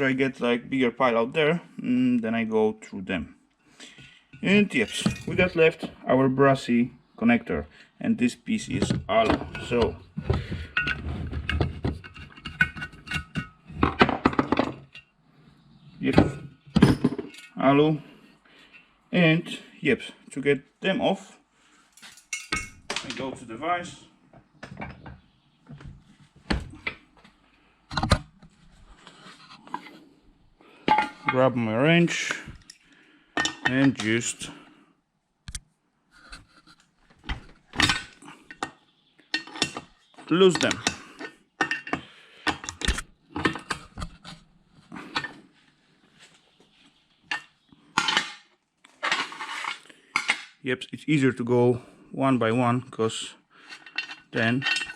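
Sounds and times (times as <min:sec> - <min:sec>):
tools and metal scrap clacking: 0:03.8 - 0:05.9, 0:08.7 - 0:15.1, 0:16.2 - 0:17.6, 0:21.9 - 0:23.3, 0:24.6 - 0:25.9, 0:30.8 - 0:31.4, 0:32.2 - 0:34.2, 0:36.2 - 0:45.5, 0:47.2 - 0:50.6, 0:53.6 - 0:54.9.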